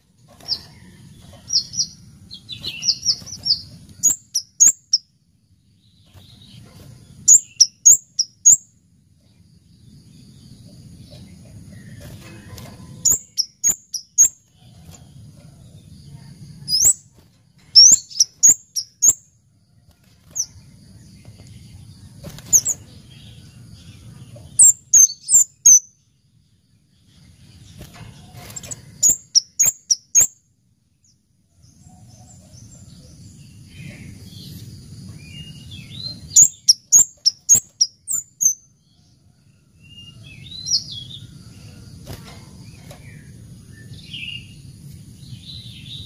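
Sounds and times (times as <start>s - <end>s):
bird chipping: 0.4s - 5.1s, 6.1s - 8.6s, 11.7s - 14.8s, 16.6s - 17.1s, 17.7s - 19.2s, 22.5s - 22.9s, 24.5s - 25.9s, 28.5s - 30.4s, 35.8s - 38.6s.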